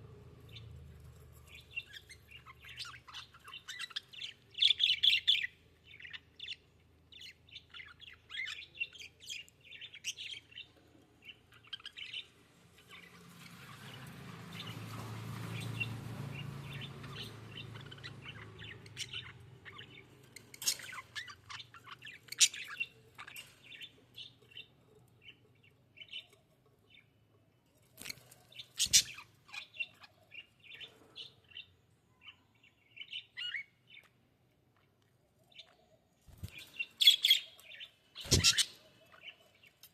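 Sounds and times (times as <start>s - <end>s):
budgerigars chirping: 1.7s - 6.6s, 15.5s - 24.7s, 28.7s - 31.7s, 36.4s - 39.4s.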